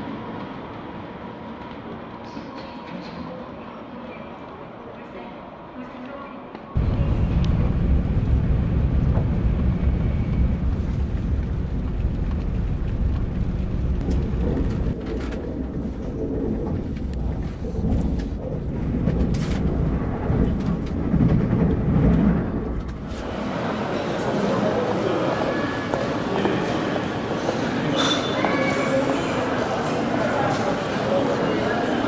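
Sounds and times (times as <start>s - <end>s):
train cabin deep rumble: 6.8s - 23.3s.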